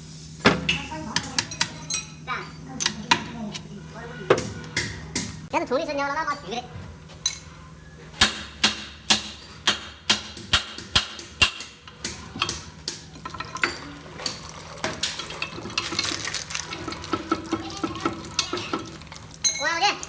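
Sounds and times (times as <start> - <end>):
sharp knocks on metal: 8.2 - 12.6.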